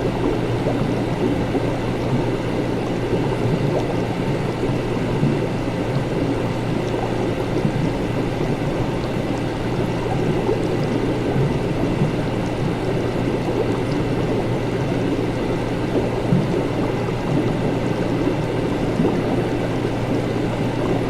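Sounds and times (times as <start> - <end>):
liquid bubbling and gurgling: 0.0 - 21.0
low equipment hum: 0.0 - 21.0.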